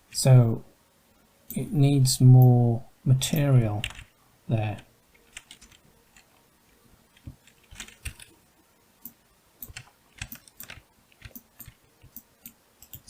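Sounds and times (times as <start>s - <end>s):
keyboard typing: 3.8s - 4.1s, 4.7s - 6.4s, 7.2s - 8.4s, 9.0s - 13.0s.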